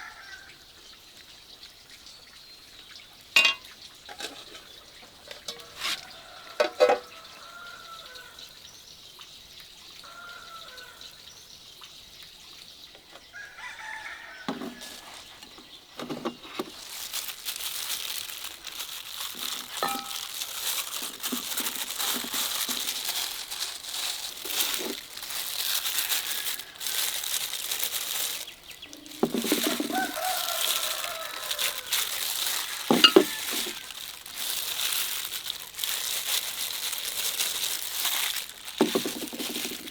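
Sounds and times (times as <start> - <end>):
rooster crowing: 5.9 - 8.3, 10.1 - 11.0, 13.3 - 15.1, 29.0 - 33.8
chickens calling: 16.8 - 39.9
food sizzling in a pan: 16.8 - 39.9.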